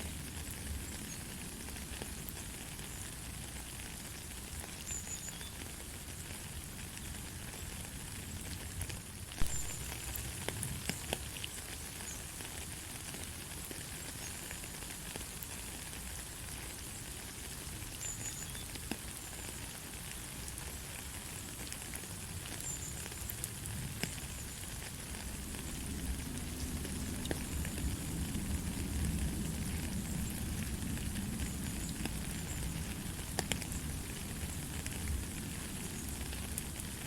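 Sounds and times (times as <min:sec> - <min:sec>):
gentle rain falling: 0:00.0 - 0:37.0.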